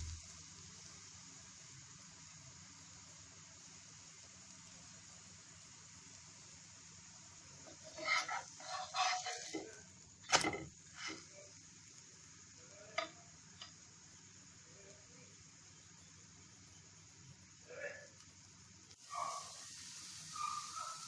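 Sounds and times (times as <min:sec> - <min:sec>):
food sizzling in oil: 0:00.0 - 0:21.0
knocks and scrapes in pan: 0:07.7 - 0:11.3.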